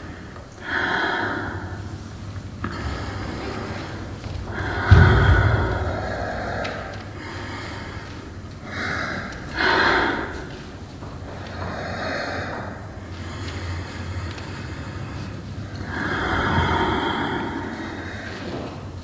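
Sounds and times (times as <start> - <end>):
heavy breathing gasps: 0.2 - 19.0
low thump: 4.3 - 7.2.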